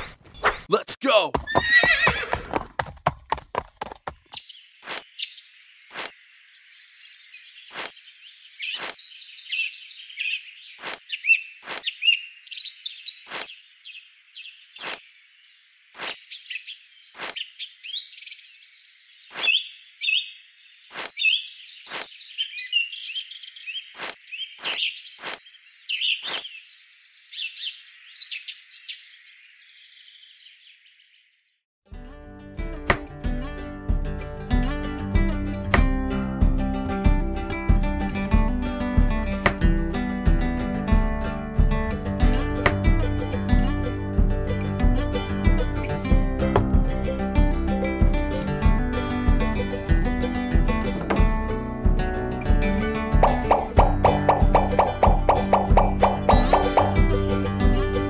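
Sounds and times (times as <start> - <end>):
small birds chirping: 4.2 - 31.7, 53.2 - 57.5
sharp clicks: 39.4 - 39.7.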